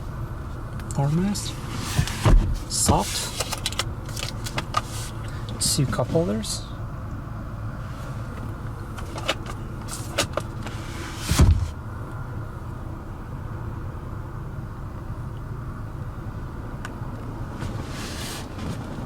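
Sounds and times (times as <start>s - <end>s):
car engine hum: 0.0s - 19.0s
heavy deep thump: 2.2s - 3.0s, 11.3s - 11.8s.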